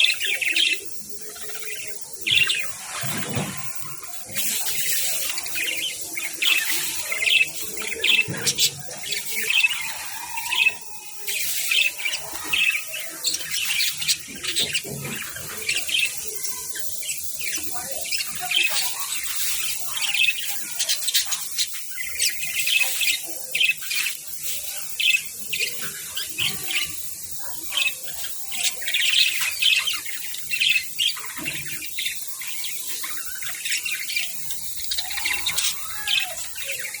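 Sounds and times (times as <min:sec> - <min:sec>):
budgerigars chirping: 0:04.4 - 0:16.2.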